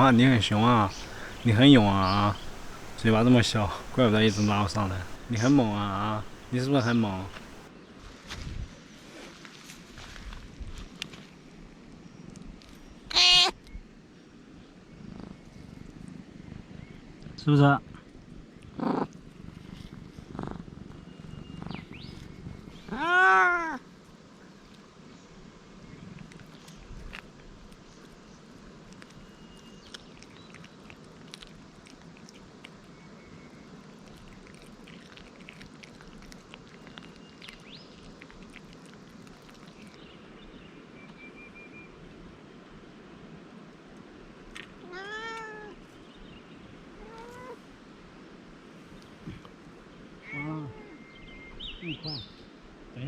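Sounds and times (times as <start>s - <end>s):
cat chewing raw fish: 0.0s - 7.7s, 28.8s - 32.9s, 33.7s - 40.0s
small birds chirping: 0.0s - 7.7s, 29.0s - 31.4s, 33.0s - 41.4s, 50.4s - 52.6s
cat meowing: 13.1s - 13.5s, 22.9s - 23.8s, 44.8s - 45.8s, 47.0s - 47.6s.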